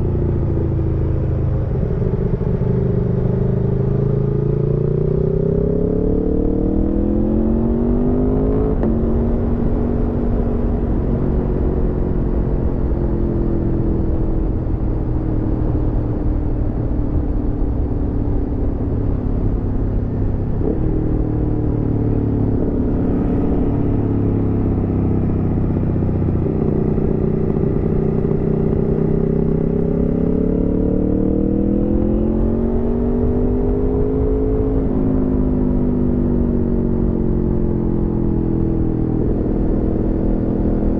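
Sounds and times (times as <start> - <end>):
wind and road noise: 0.0 - 40.9
motorcycle engine revving: 20.1 - 40.9.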